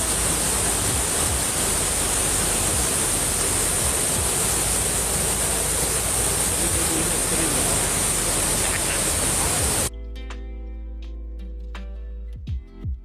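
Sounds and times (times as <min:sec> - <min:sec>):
low rumble: 0:00.0 - 0:09.9
steady rushing noise: 0:00.0 - 0:09.9.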